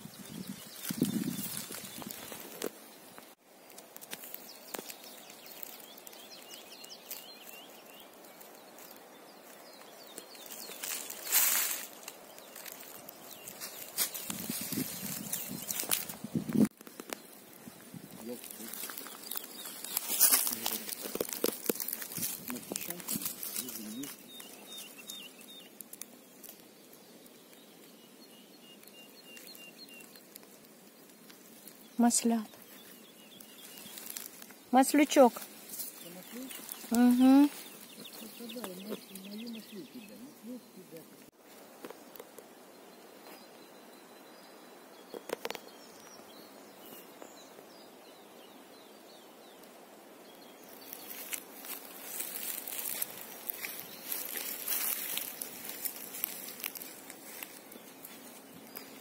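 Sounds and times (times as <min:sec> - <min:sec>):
small bird chirping: 0:00.0 - 0:41.3, 0:41.9 - 0:59.0
rustle in dry grass: 0:00.0 - 0:59.0
small clicks and ticks: 0:02.0 - 0:07.6, 0:15.6 - 0:17.4, 0:18.4 - 0:27.9, 0:45.1 - 0:45.7, 0:50.9 - 0:59.0.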